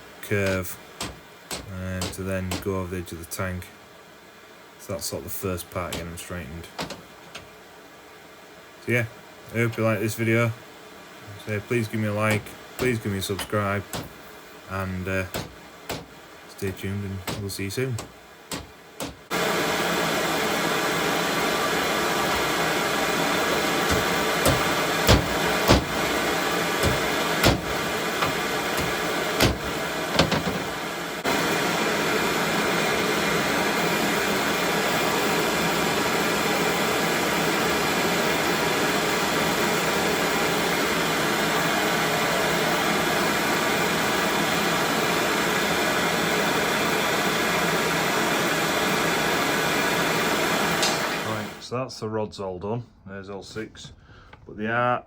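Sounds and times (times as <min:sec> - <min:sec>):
gas torch hissing: 0:00.0 - 0:03.0, 0:11.4 - 0:40.8, 0:41.5 - 0:51.6
hammer knocks: 0:00.4 - 0:02.7, 0:06.8 - 0:07.5, 0:12.3 - 0:14.2, 0:15.3 - 0:16.2, 0:17.2 - 0:19.3, 0:23.8 - 0:26.2, 0:26.8 - 0:30.8.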